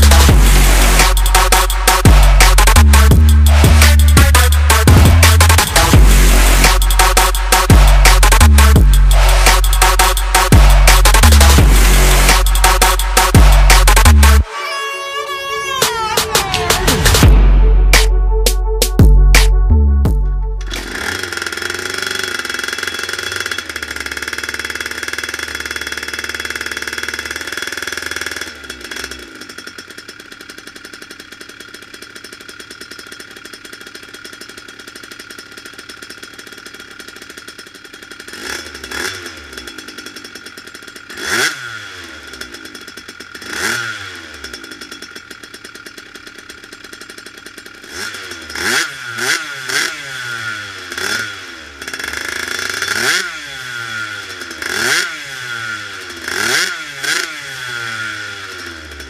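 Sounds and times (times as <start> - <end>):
scooter engine revving and idling: 0.0 - 14.5, 15.3 - 59.0.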